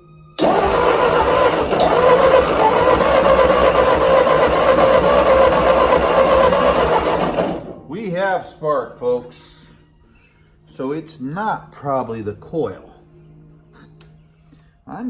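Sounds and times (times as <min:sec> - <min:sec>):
tractor engine cranking on starter: 0:00.4 - 0:07.9.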